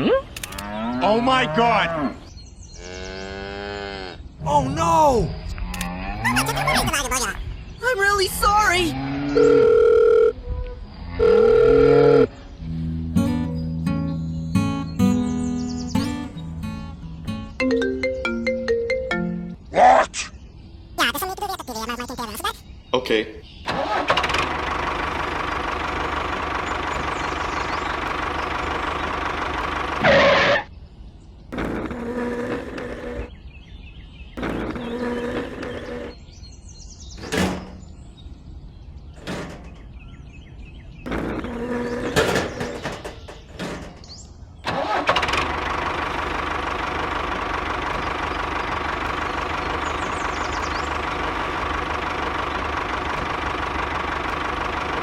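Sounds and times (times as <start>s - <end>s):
small engine running: 23.7s - 30.5s, 31.6s - 33.3s, 34.4s - 36.2s, 44.8s - 55.0s.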